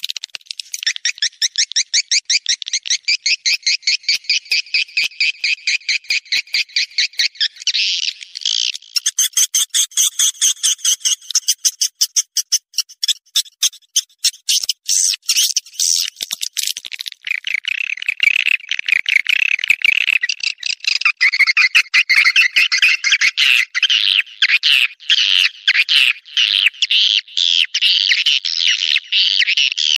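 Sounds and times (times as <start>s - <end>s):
birds clicking chirps: 0.0s - 27.3s.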